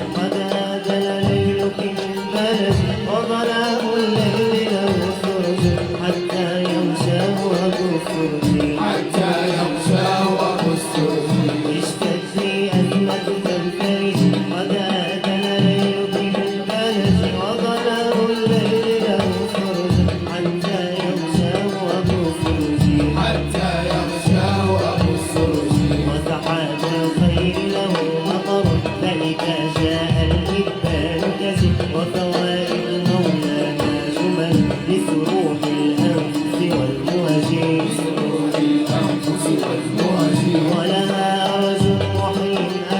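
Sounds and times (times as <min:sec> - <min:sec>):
hand drums beating: 0:00.0 - 0:42.9
ornamented ensemble melody: 0:00.0 - 0:42.9.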